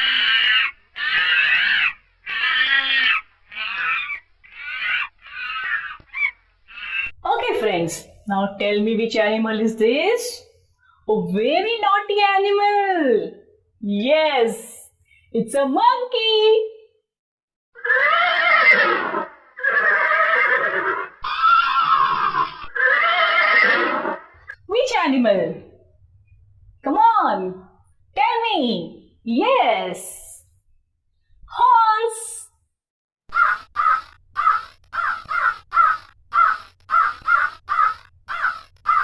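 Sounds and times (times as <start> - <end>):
horse whinnying: 0.0 - 6.1, 17.8 - 24.5
crow cawing: 0.0 - 7.1, 33.3 - 39.0.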